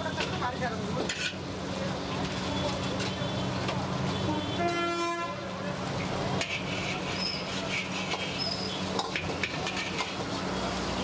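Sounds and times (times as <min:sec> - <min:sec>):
metal ladle scraping pan: 0:01.0 - 0:01.5, 0:06.3 - 0:10.4
chicken sizzling in oil: 0:05.4 - 0:11.0.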